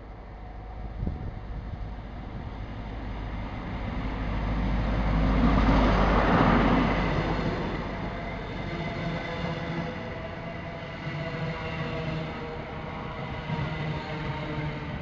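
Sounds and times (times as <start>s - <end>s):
diesel train engine passing: 0.0s - 15.0s
wheels rumbling on rail: 0.0s - 15.0s.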